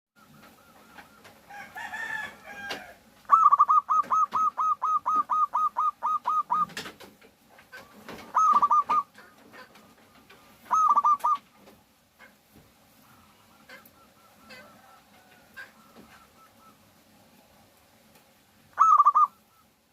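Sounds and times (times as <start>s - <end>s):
dove cooing: 0.2s - 6.9s, 7.7s - 11.5s, 13.0s - 17.1s, 18.7s - 19.8s
bird call: 3.3s - 6.8s, 8.2s - 9.2s, 10.6s - 11.4s, 13.2s - 16.8s, 18.7s - 19.8s.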